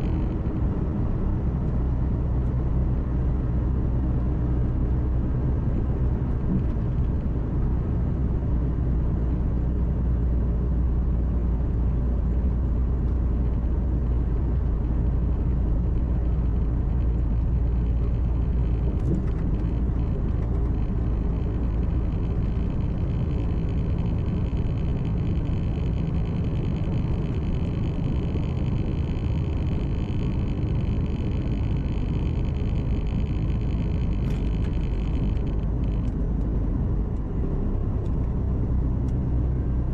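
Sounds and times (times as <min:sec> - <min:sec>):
truck engine and tyre drone: 0:00.0 - 0:39.9
faint high whine: 0:14.9 - 0:36.4.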